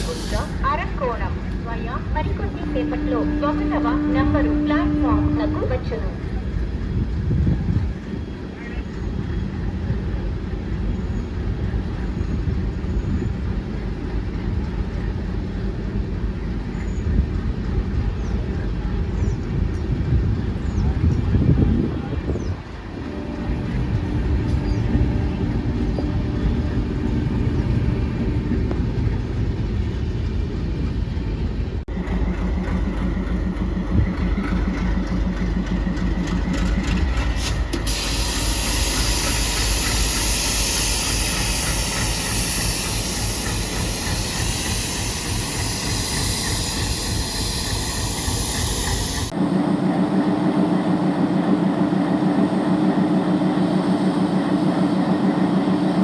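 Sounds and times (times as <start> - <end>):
compressed air hissing: 0.0 - 0.6, 37.4 - 49.3
diesel locomotive engine idling: 0.0 - 56.0.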